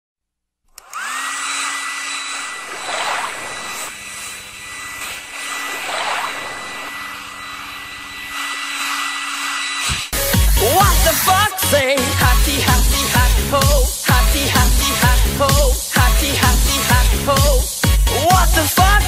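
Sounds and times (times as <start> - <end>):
high-pitched whine: 2.3 - 10.0.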